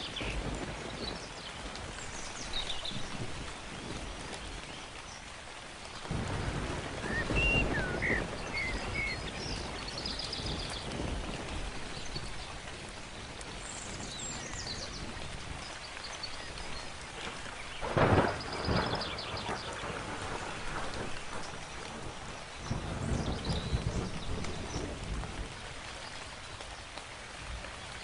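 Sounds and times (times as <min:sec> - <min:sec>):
steady rain falling: 0:00.0 - 0:28.0
low roll of thunder: 0:06.1 - 0:15.5, 0:17.8 - 0:25.8
birds chirping and trilling: 0:07.0 - 0:10.9.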